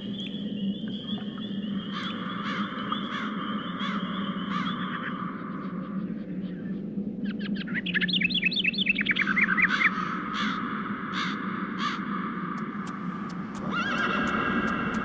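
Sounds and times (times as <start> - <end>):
birds chirping: 0.0 - 12.0
steady low hum: 0.0 - 15.0.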